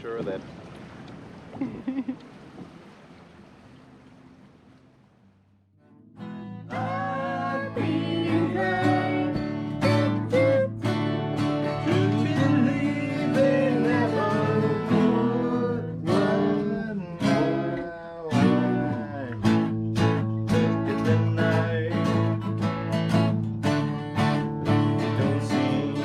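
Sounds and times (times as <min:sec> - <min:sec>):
strummed acoustic guitar: 0:05.8 - 0:26.0.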